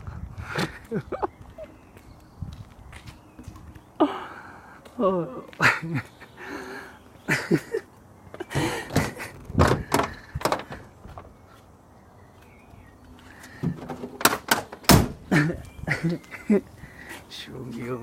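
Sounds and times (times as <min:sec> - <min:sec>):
heavy truck door thunks: 0:08.5 - 0:11.3, 0:13.6 - 0:15.3
sharp metallic latch clicks: 0:08.6 - 0:10.8, 0:13.6 - 0:15.2.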